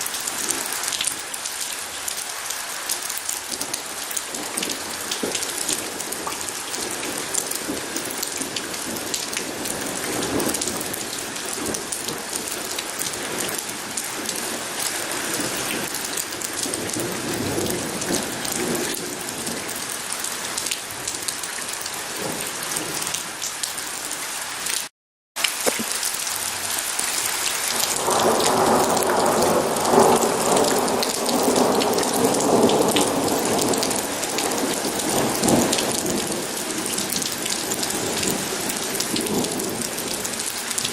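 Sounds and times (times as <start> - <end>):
heavy rain pattering: 0.0 - 40.9
thunder rumbling: 27.7 - 40.9.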